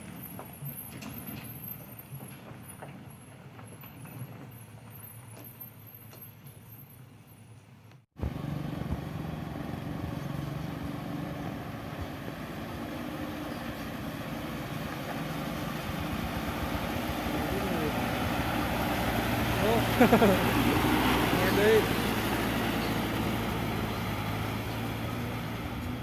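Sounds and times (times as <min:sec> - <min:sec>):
truck engine running: 0:08.2 - 0:26.0.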